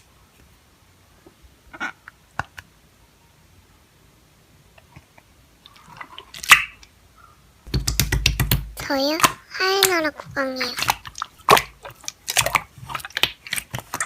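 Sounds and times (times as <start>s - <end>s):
slime squishing by hand: 5.6s - 6.9s, 7.7s - 14.0s.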